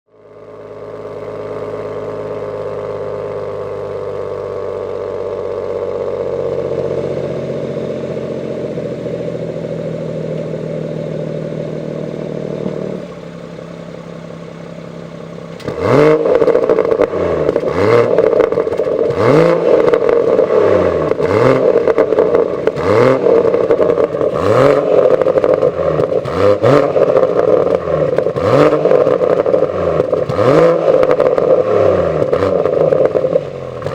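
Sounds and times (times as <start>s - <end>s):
car engine idling: 0.1s - 33.9s
exhaust crackles and pops: 12.1s - 13.3s, 15.5s - 33.9s
engine revving: 15.4s - 33.9s.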